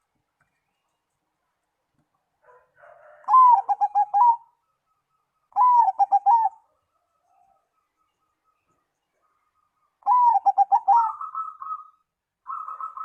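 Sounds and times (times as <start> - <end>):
dove cooing: 2.8 - 4.6, 5.5 - 6.8, 10.0 - 13.0.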